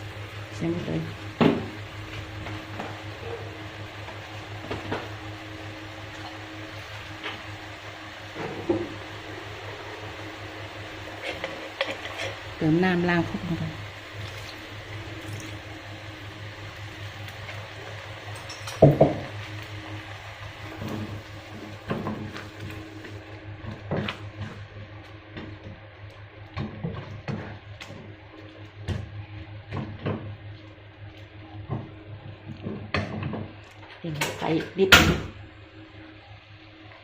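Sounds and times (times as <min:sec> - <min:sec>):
steady low hum: 0:00.0 - 0:37.0
spatula scraping pan: 0:11.1 - 0:12.5.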